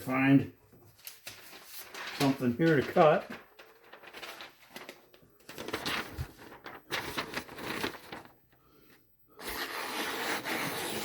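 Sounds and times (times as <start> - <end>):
knife slicing through paper: 9.4 - 11.0.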